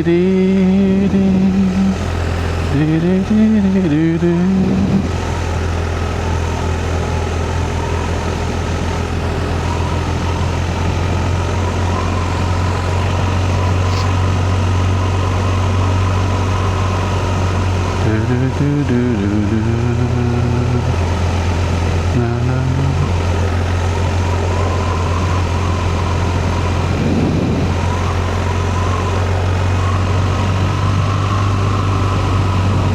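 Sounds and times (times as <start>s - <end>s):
motorcycle engine cruising: 0.0s - 32.9s
wind rush: 23.0s - 32.9s.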